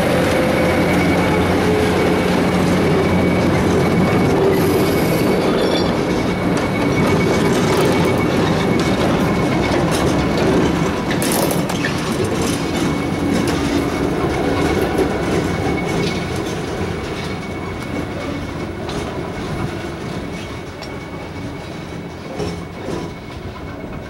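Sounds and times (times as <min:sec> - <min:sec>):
diesel locomotive running: 0:00.0 - 0:24.0
high steady squeal: 0:00.0 - 0:24.0
train wheels clacking over rail joints: 0:00.0 - 0:24.0.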